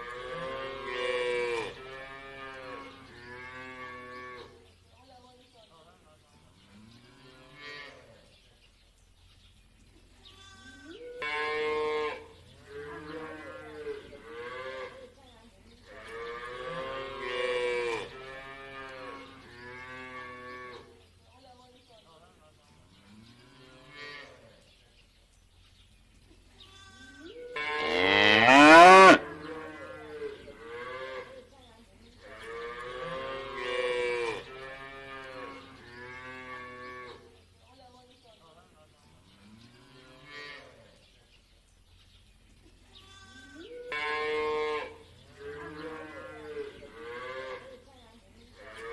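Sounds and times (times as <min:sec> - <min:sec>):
cattle mooing: 0:27.6 - 0:29.2.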